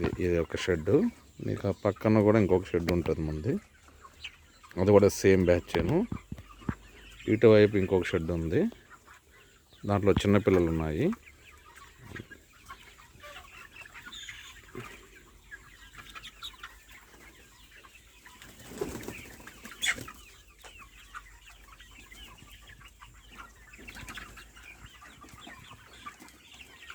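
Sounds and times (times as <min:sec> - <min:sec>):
chickens clucking and calling: 0:00.0 - 0:26.9
wings flapping: 0:18.4 - 0:20.1.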